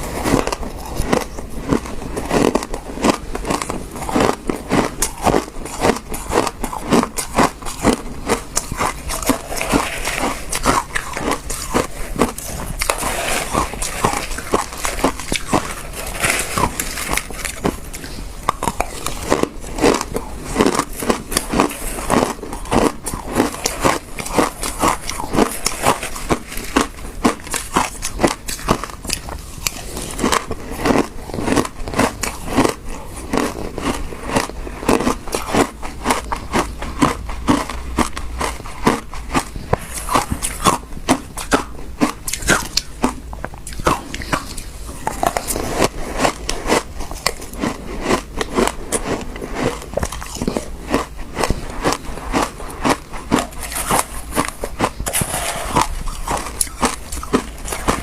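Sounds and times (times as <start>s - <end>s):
ice being crunched: 0.0s - 36.5s.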